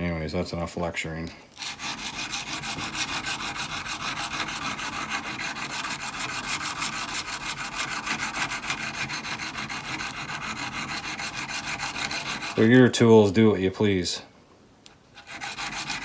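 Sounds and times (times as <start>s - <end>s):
chisel scraping on abrasive stone: 1.6s - 12.9s, 15.1s - 16.0s.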